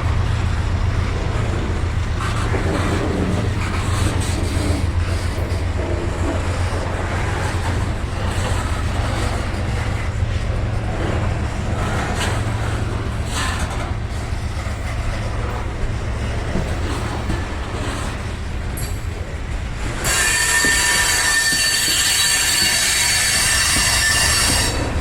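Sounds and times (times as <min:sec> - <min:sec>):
freight train cars rolling: 0:00.0 - 0:25.0
train clanks: 0:00.0 - 0:25.0.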